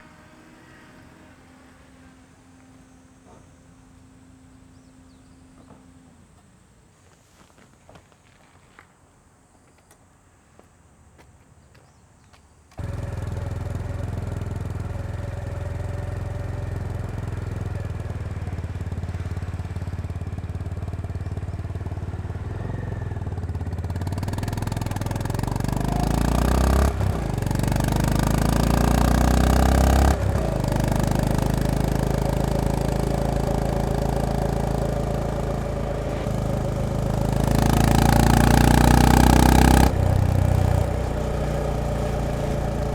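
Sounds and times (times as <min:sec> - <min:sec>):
motorcycle engine starting and running: 0:12.8 - 0:42.9.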